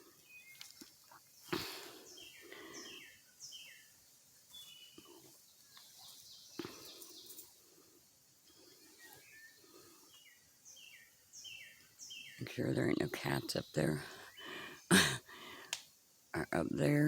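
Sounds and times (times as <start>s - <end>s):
birds chirping: 0.0s - 17.0s
sharp clicks: 15.6s - 15.9s.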